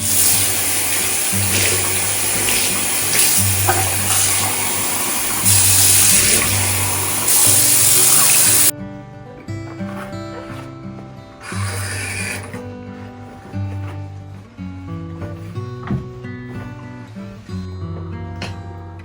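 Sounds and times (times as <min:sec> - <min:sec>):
water running from a tap: 0:00.0 - 0:08.7, 0:11.5 - 0:12.5
soft background music: 0:00.0 - 0:19.0.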